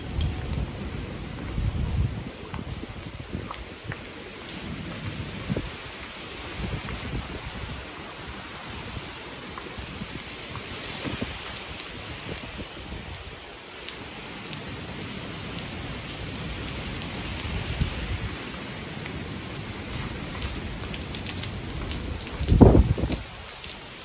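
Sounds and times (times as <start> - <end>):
gusty wind rumbles: 0.0 - 4.0, 4.6 - 9.1, 21.8 - 23.4
heavy rain pouring: 0.0 - 24.0.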